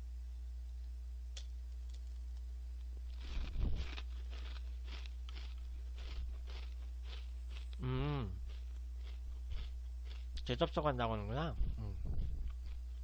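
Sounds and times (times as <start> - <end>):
low electrical hum: 0.0 - 13.0
crackers crunching in mouth: 1.8 - 10.8, 12.2 - 13.0.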